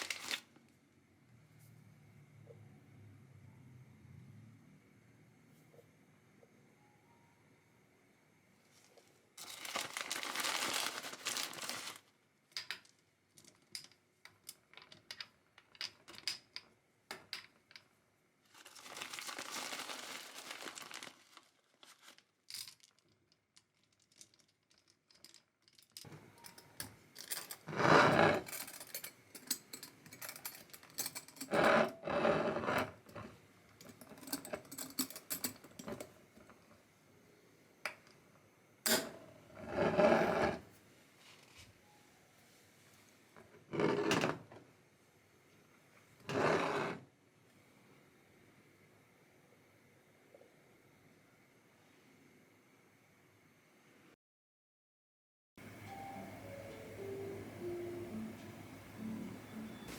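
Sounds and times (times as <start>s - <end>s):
plastic bag crinkling: 0.0s - 0.5s, 9.4s - 12.1s, 18.5s - 23.0s.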